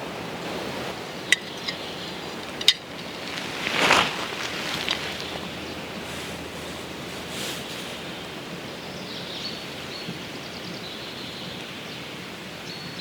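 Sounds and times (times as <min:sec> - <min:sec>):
rushing forest background: 0:00.0 - 0:12.4
small bird singing: 0:01.2 - 0:12.1.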